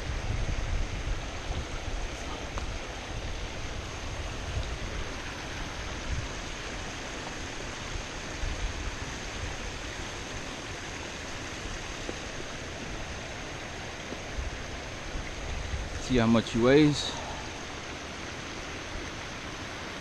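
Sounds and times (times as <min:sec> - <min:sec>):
creek water rushing: 0:00.0 - 0:20.0
low water rumble: 0:00.0 - 0:20.0.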